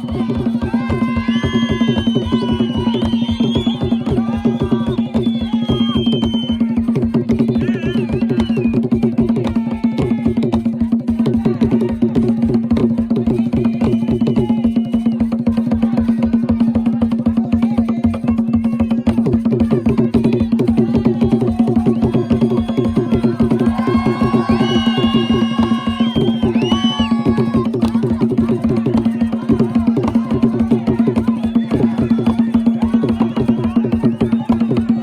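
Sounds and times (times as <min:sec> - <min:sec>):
fast drumming: 0:00.0 - 0:35.0
voices calling out: 0:20.7 - 0:35.0.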